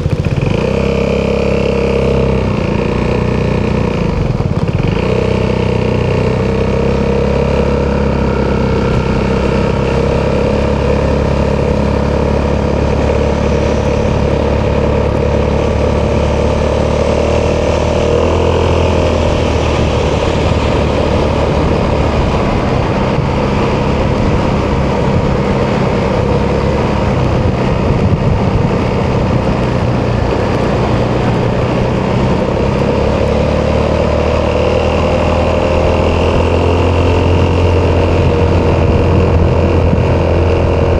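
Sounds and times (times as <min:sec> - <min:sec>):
scooter engine running: 0:00.0 - 0:40.9.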